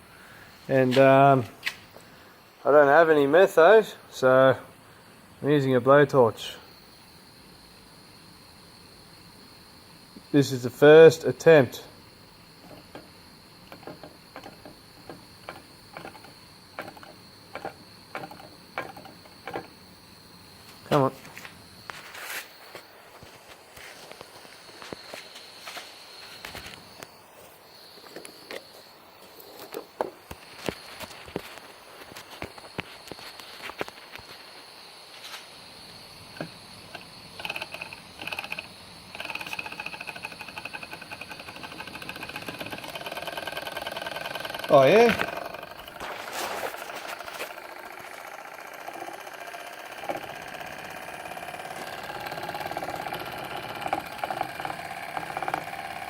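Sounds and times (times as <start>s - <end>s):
model engine parts clicking: 12.6s - 19.8s, 36.4s - 56.0s.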